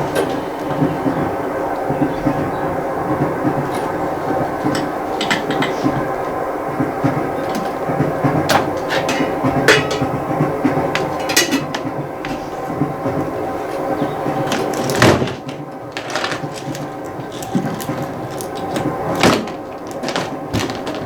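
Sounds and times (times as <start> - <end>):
train carriage rumbling: 0.0 - 21.0
sharp knocks and clinks: 8.5 - 10.3.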